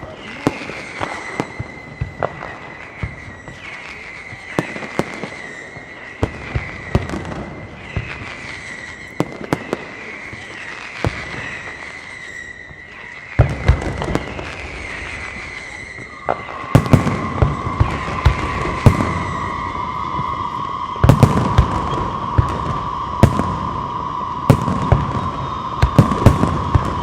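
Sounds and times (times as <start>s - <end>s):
fireworks high whistling: 0.0s - 27.0s
firework shells bursting: 13.5s - 27.0s.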